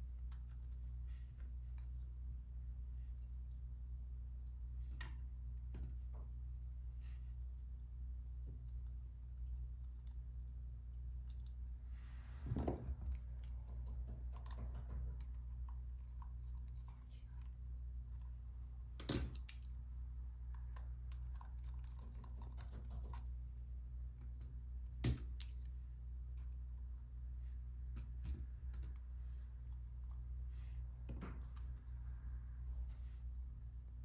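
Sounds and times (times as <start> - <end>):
low hum: 0.0 - 34.0
small clicks and taps of tools: 4.4 - 6.3, 11.3 - 11.7, 27.9 - 29.1.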